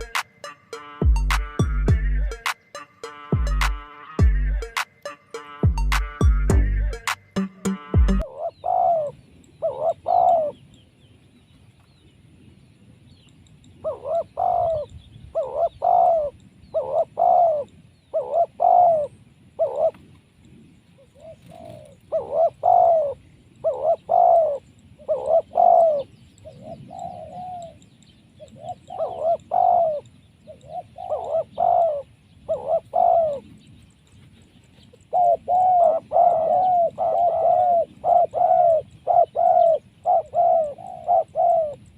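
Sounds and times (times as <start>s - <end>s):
dove cooing: 8.2s - 10.6s, 13.8s - 20.1s, 21.2s - 27.8s, 28.4s - 33.6s, 34.9s - 41.9s.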